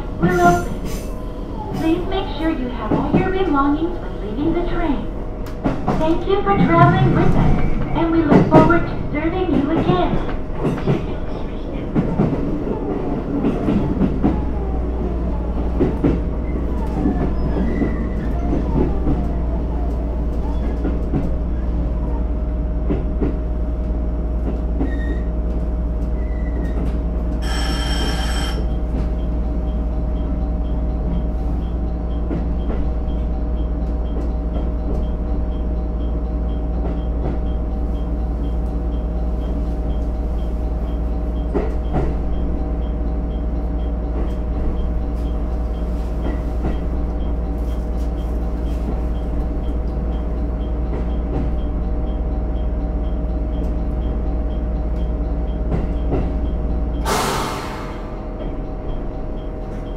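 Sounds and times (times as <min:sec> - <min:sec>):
railcar engine humming: 0:00.0 - 0:59.9
short electronic tone: 0:27.4 - 0:28.7.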